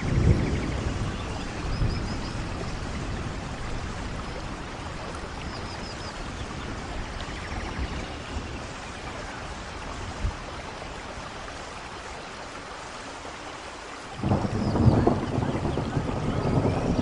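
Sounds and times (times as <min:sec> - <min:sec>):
low thunder rumble: 0:00.0 - 0:05.3, 0:14.2 - 0:17.0
steady rain falling: 0:00.0 - 0:17.0.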